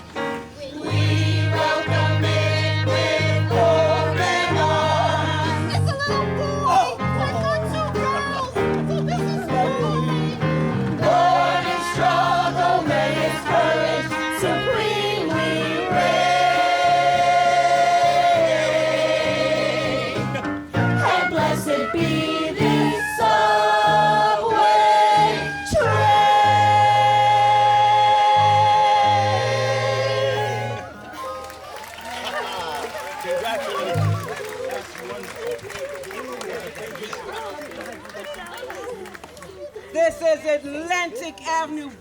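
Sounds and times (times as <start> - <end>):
instrumental accompaniment with bass: 0.0 - 31.8
voices singing together: 0.7 - 6.9, 10.1 - 31.1.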